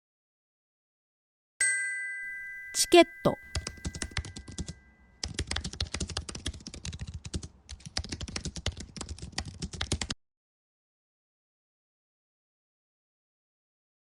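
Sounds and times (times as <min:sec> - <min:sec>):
typing on a computer keyboard: 0:03.5 - 0:10.2.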